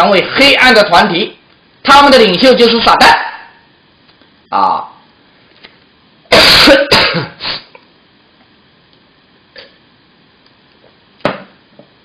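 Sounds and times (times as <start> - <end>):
man coughing: 6.3 - 7.7.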